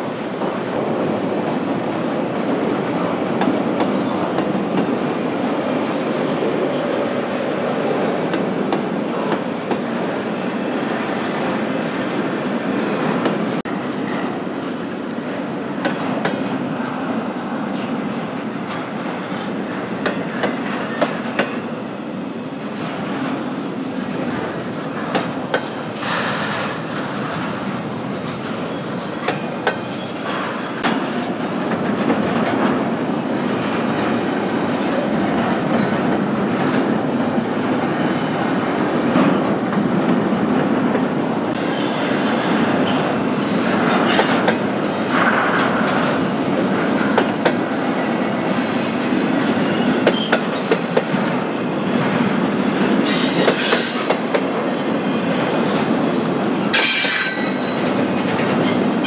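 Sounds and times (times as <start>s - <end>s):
train wheels clacking over rail joints: 55.4s - 59.0s.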